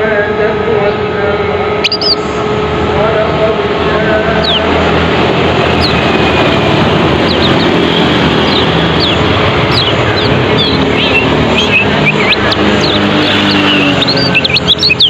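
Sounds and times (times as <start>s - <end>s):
loud rumbling noise: 0.0s - 15.0s
low hum: 0.0s - 15.0s
bird chirping: 1.8s - 2.4s, 4.3s - 15.0s.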